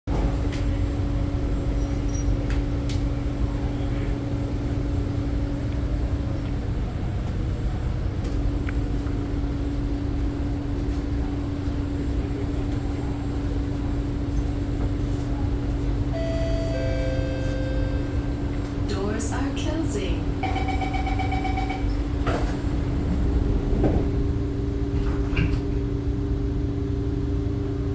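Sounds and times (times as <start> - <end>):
train low rumble: 0.1 - 27.9
steady beeping tones: 16.2 - 18.4, 20.4 - 21.9.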